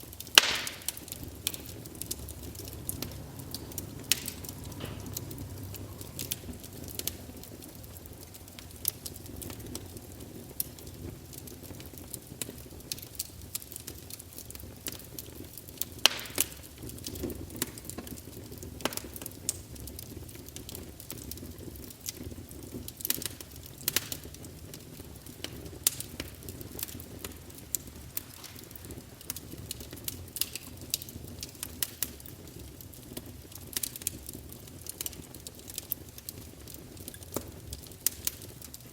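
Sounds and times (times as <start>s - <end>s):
fire flames rumbling: 0.0s - 38.9s
logs crackling and popping: 0.0s - 38.9s
sharp snap of wood: 0.4s - 1.0s.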